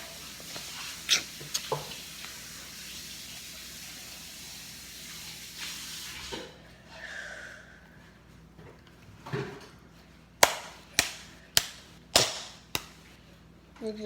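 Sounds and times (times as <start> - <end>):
water running from a tap: 0.0 - 6.5.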